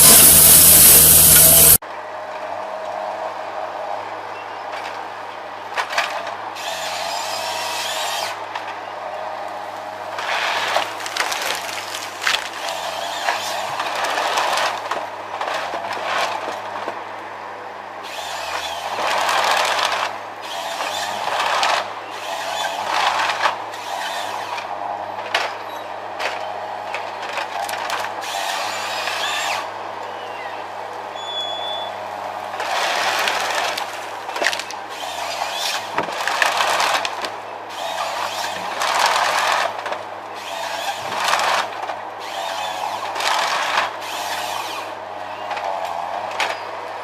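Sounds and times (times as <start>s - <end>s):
engine running: 0.0s - 1.8s
saw cutting through wood: 0.0s - 1.8s, 18.0s - 24.6s, 28.2s - 29.7s, 34.9s - 37.1s, 37.7s - 39.8s, 40.4s - 44.9s.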